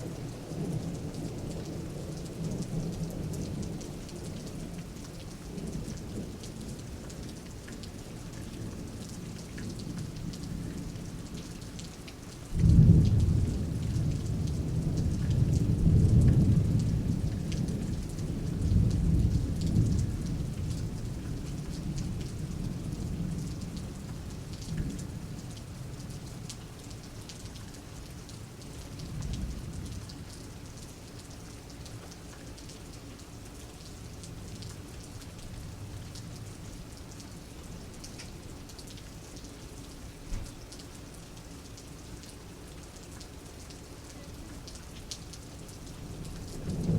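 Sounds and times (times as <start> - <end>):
rain falling: 0.0 - 46.9
thunder: 12.6 - 20.8, 46.6 - 46.9.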